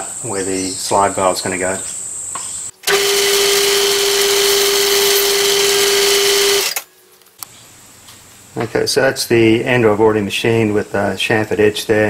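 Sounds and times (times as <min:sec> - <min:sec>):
metal lathe whine: 0:02.9 - 0:06.8.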